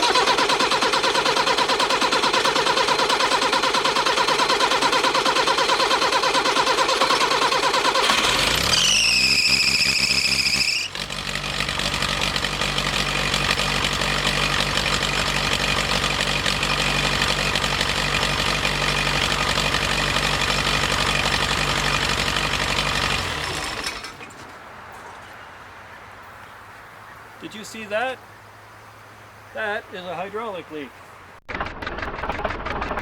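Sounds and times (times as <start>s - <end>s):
diesel engine running: 0.0s - 24.5s, 31.5s - 33.0s.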